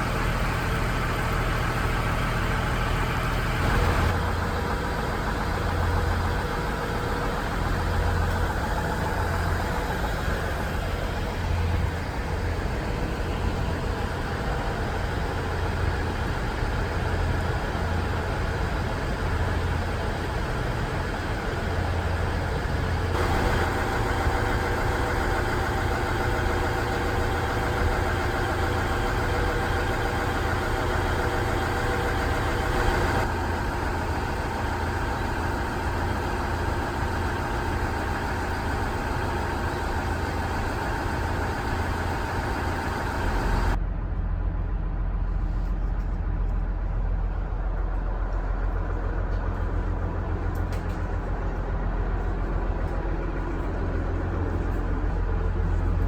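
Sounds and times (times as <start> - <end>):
diesel railcar engine drone: 0.0 - 56.0
high engine whine: 0.0 - 56.0.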